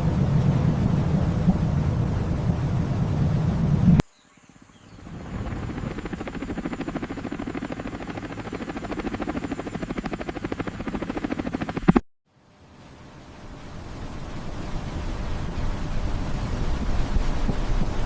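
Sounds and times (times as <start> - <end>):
rapid mechanical pulsing: 5.0 - 12.0.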